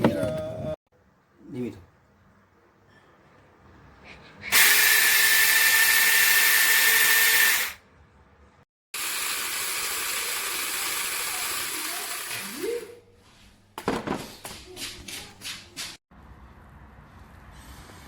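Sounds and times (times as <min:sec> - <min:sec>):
electric chainsaw motor whining: 0:04.5 - 0:07.8, 0:09.0 - 0:12.9.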